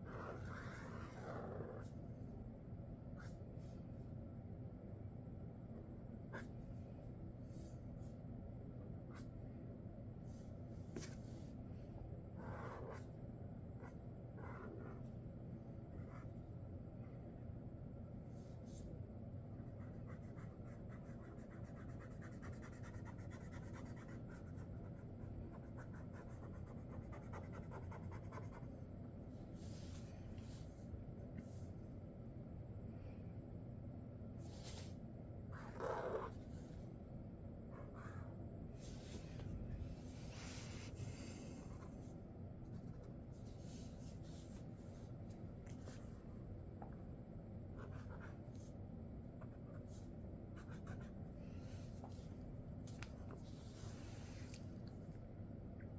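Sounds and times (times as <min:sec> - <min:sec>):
steady low hum: 0:00.0 - 0:55.9
marker scratching on paper: 0:00.1 - 0:01.9, 0:12.4 - 0:13.1, 0:13.8 - 0:15.0, 0:19.8 - 0:24.6, 0:25.5 - 0:28.7, 0:35.6 - 0:36.7, 0:47.8 - 0:48.4, 0:49.4 - 0:51.1.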